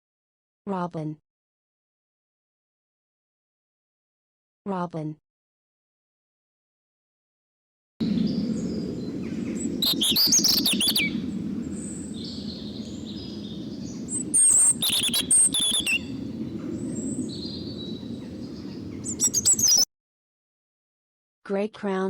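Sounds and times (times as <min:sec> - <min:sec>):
low background rumble: 0:08.0 - 0:19.8
robin chirping and warbling: 0:08.0 - 0:19.8.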